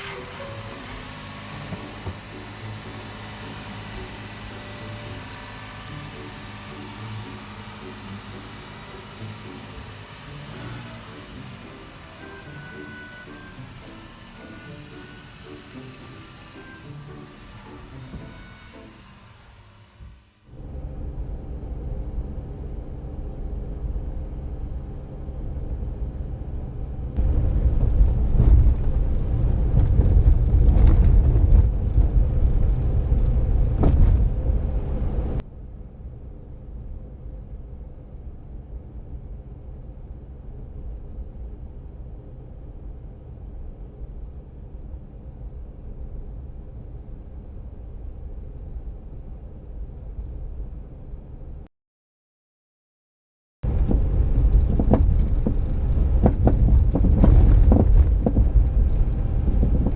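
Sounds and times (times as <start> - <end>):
van engine running: 0.0 - 19.5, 20.5 - 35.4, 53.6 - 59.9
road and tyre noise: 0.0 - 51.7, 53.6 - 59.9.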